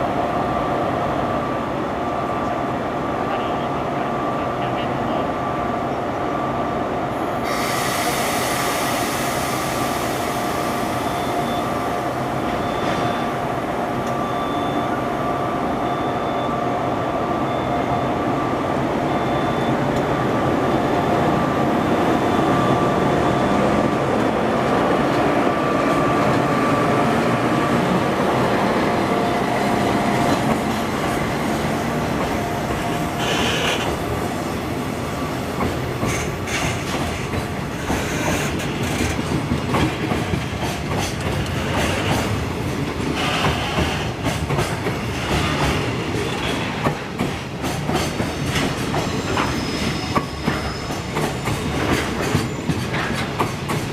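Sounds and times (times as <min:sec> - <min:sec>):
train rolling rumble: 0:07.2 - 0:53.9
high-pitched wheel squeal: 0:49.2 - 0:51.2.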